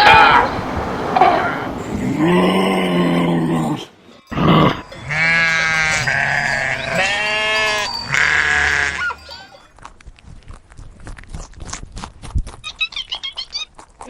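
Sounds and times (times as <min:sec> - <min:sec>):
sheep bleating: 0:00.0 - 0:09.6.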